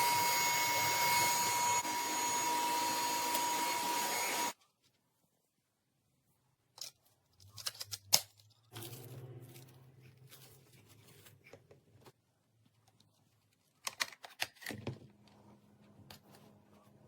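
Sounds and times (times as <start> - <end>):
plastic parts clicking and rattling: 6.7 - 11.9, 12.7 - 15.2.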